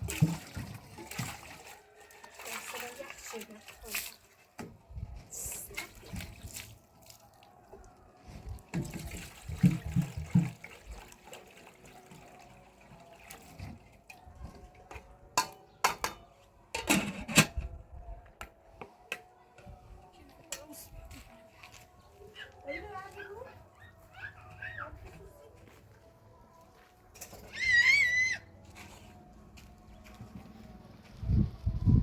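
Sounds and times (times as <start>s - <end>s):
water splashing and pouring: 0.0s - 4.5s, 5.3s - 7.5s, 8.6s - 14.0s.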